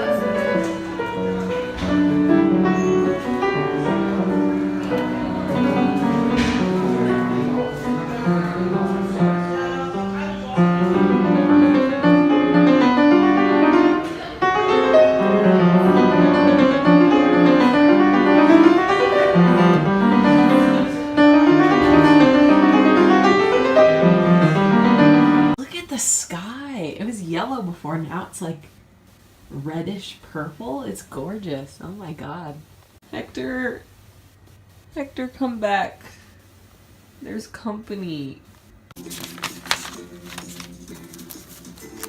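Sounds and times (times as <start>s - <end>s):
piano music: 0.0s - 25.6s.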